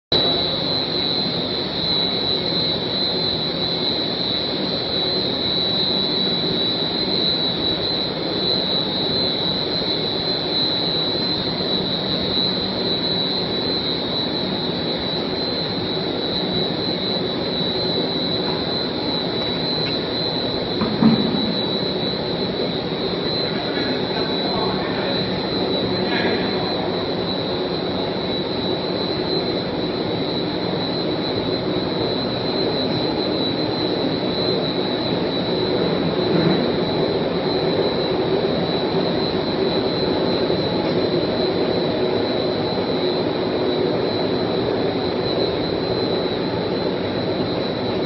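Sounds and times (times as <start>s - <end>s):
machinery drone with whine: 0.1s - 48.0s.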